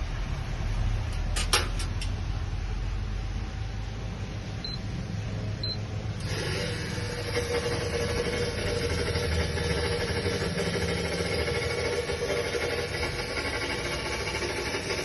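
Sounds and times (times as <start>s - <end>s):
machine humming: 4.1s - 15.0s.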